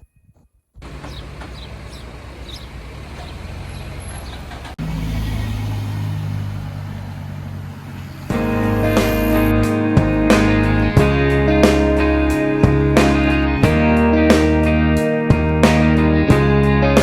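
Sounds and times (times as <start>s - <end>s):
moving vehicle running hum: 0.8s - 13.8s
loud steady low drone: 8.3s - 15.6s.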